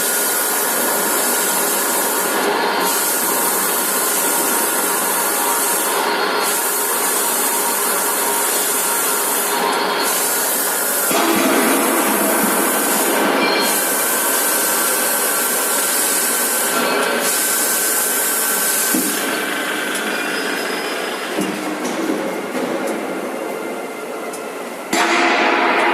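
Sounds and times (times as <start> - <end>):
loud hiss: 0.0 - 19.3
drilling machine running: 0.0 - 21.4.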